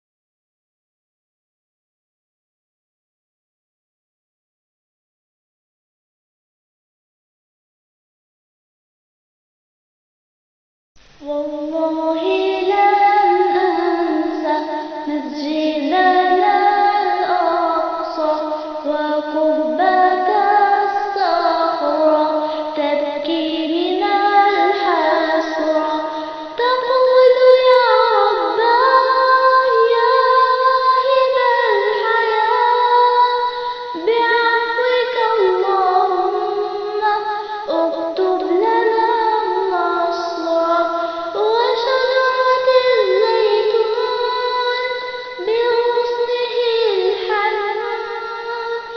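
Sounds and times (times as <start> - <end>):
girl singing: 11.0 - 48.9.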